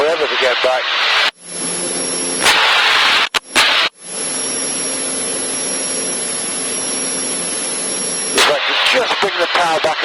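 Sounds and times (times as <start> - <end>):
thin high whine: 0.0 - 10.0
airplane engine and propeller: 1.4 - 2.6, 3.5 - 8.7.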